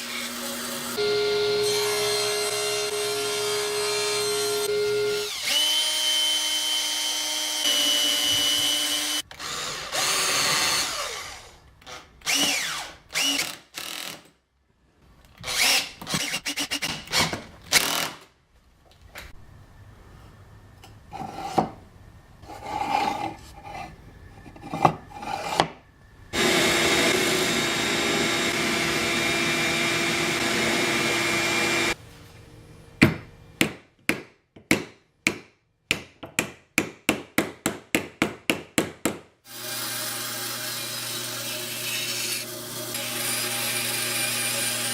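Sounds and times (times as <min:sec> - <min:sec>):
electric drill running: 0:26.4 - 0:32.0.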